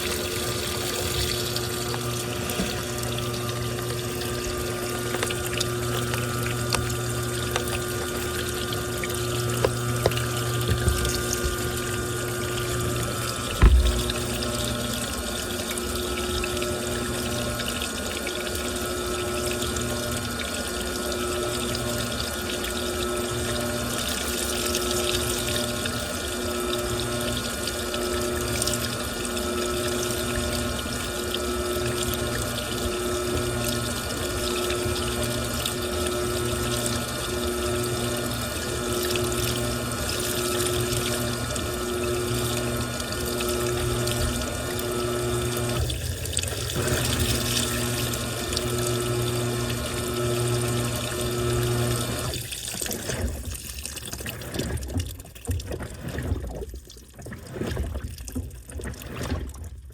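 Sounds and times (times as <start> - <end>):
water rushing in washing machine: 0.0 - 59.9
pulsing hum: 1.2 - 15.0.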